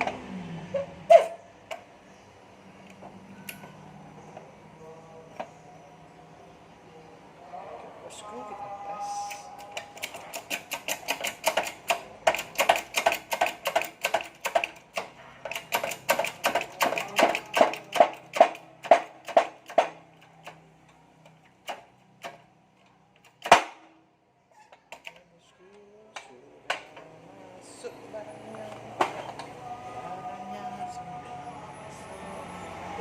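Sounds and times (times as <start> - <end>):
scattered clicks: 9.2 - 18.4
sharp metallic knocks: 10.0 - 20.0.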